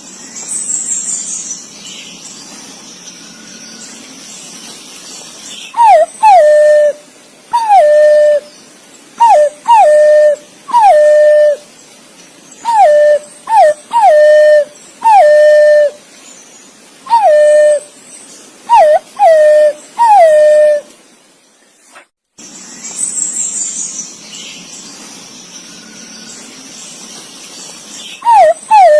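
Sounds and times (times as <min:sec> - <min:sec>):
pigeon whistled calls: 0:05.8 - 0:08.5, 0:09.2 - 0:11.6, 0:12.6 - 0:16.0, 0:17.1 - 0:17.9, 0:18.7 - 0:20.9, 0:28.2 - 0:28.9.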